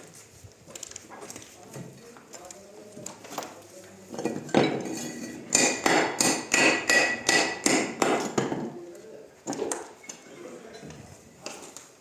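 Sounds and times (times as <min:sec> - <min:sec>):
hammer striking stone: 0:05.5 - 0:08.7.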